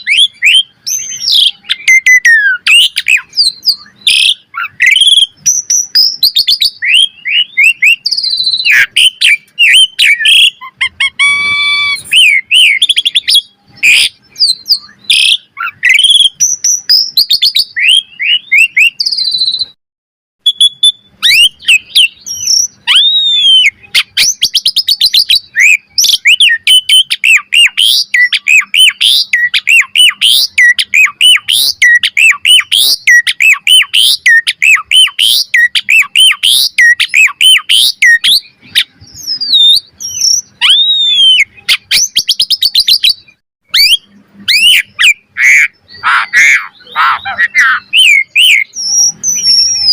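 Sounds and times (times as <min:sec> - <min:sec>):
starling singing: 0:00.0 - 0:19.8, 0:20.4 - 0:49.9.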